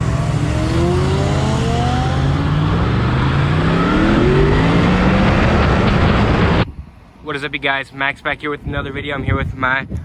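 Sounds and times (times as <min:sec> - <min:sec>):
motorcycle engine accelerating: 0:00.0 - 0:06.7.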